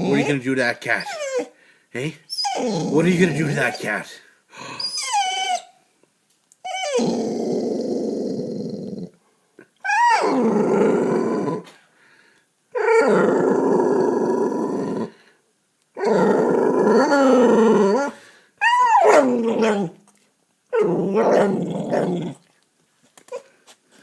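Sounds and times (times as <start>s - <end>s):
dog growling: 0.0s - 1.5s, 2.4s - 3.9s, 6.7s - 9.2s, 9.9s - 11.8s, 12.7s - 15.2s, 16.0s - 20.0s, 20.7s - 22.5s
dog whining: 0.0s - 1.6s, 2.3s - 4.0s, 4.7s - 5.8s, 6.6s - 9.1s, 9.8s - 11.7s, 12.7s - 15.1s, 16.0s - 20.1s, 20.7s - 22.4s.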